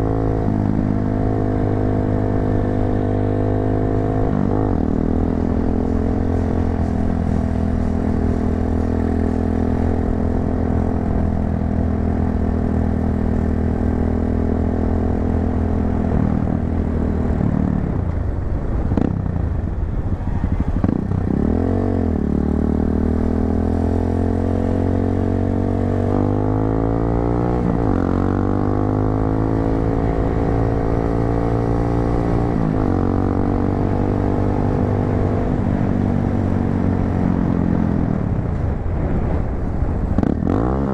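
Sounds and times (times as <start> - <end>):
motorcycle engine revving: 20.6 - 40.9.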